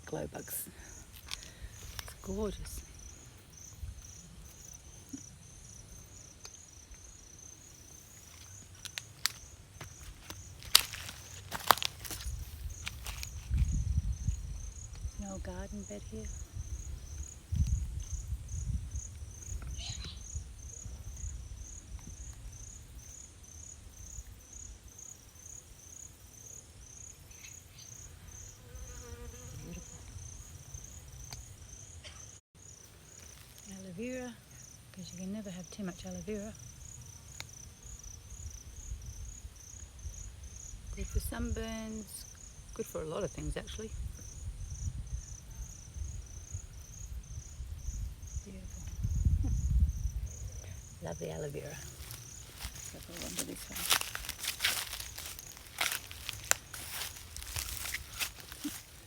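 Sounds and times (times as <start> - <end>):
insect chirping: 0.0 - 59.0
footsteps on dry ground: 8.2 - 13.9, 51.7 - 59.0.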